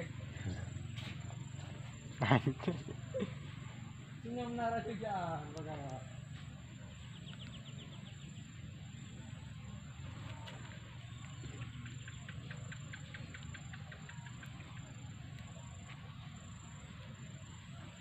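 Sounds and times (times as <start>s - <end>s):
high insect-like whine: 0.0s - 18.0s
bird chirping trill: 3.8s - 10.1s, 11.0s - 15.3s.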